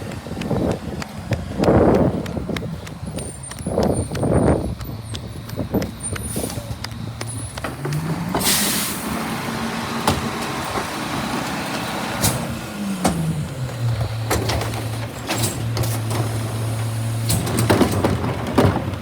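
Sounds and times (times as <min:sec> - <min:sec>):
garbage truck engine running: 0:00.0 - 0:19.0
air hiss: 0:08.4 - 0:09.2.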